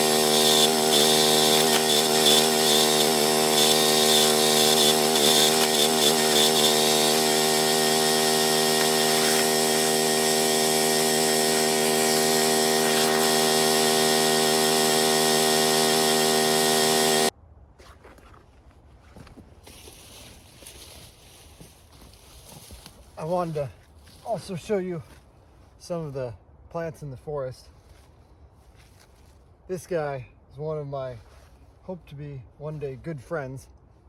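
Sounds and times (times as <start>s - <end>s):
small engine running: 0.0s - 17.3s.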